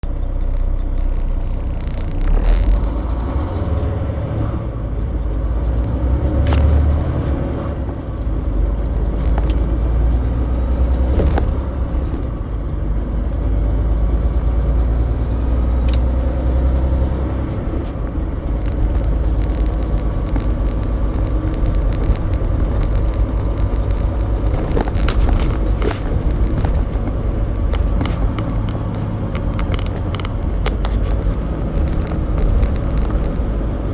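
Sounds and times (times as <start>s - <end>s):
clicks and rattles: 0.0s - 4.0s, 8.8s - 12.6s, 15.8s - 33.9s
truck diesel engine rumble: 0.0s - 33.9s.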